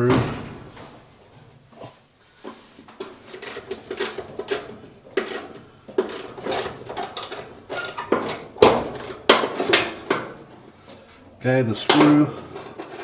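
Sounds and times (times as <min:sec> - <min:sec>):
socket wrench clicking: 0:03.4 - 0:09.9.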